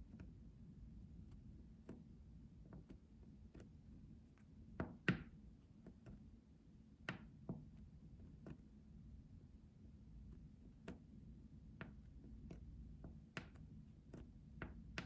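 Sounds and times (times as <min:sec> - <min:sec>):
light taps and clicks: 0:11.8 - 0:15.0.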